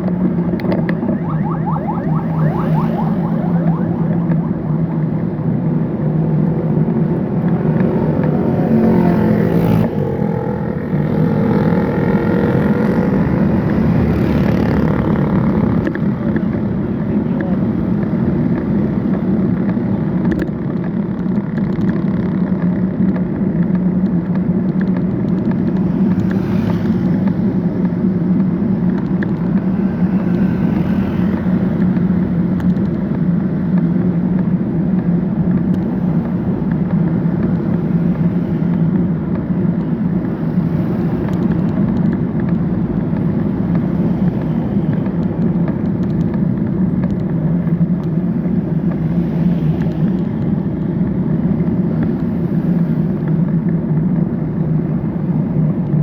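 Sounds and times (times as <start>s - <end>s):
traffic engine and road noise: 0.0s - 56.0s
engine pitch rising and falling: 0.6s - 15.9s.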